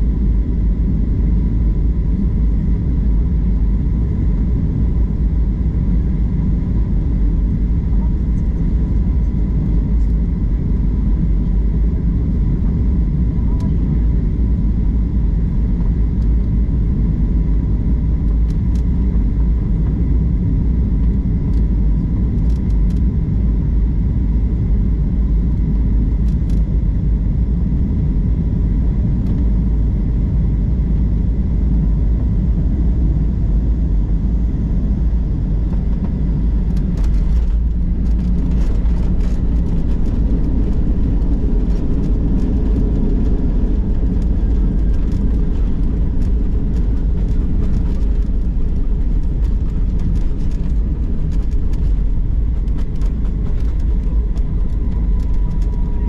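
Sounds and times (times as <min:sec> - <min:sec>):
airliner engine rumble: 0:00.0 - 0:56.0
light clicks and rattles: 0:36.6 - 0:56.0.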